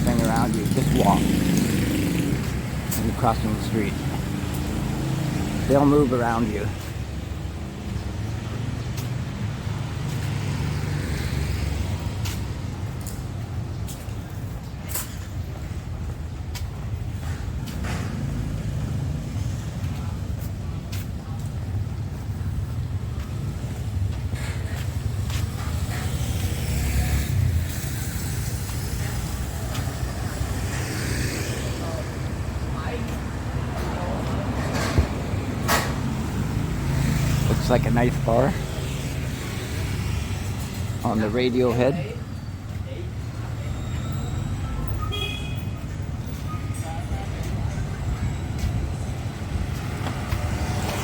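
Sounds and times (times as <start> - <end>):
street traffic passing: 0.0 - 51.0.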